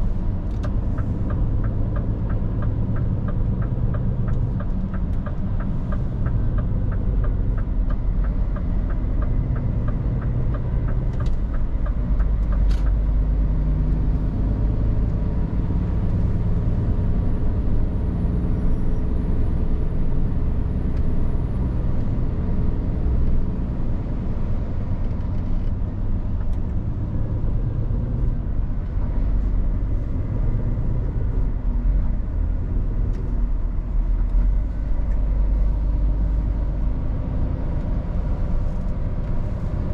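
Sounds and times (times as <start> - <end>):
truck engine and road noise: 0.0 - 39.9
turn indicator ticking: 0.1 - 18.0.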